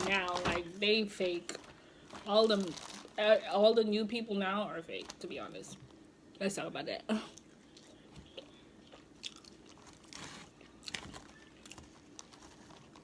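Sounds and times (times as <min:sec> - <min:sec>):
chewing and biting food: 0:07.7 - 0:13.0.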